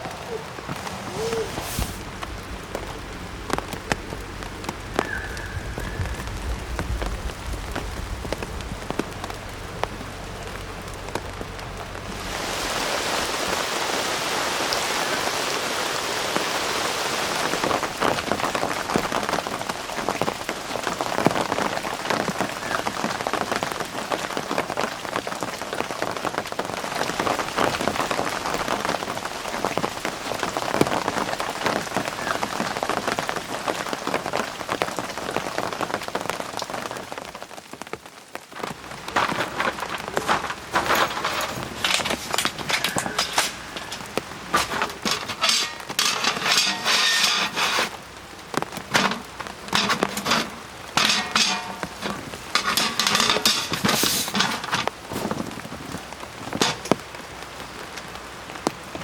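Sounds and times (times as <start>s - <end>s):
rain pattering: 0.0s - 59.0s
low rumble: 0.7s - 12.4s.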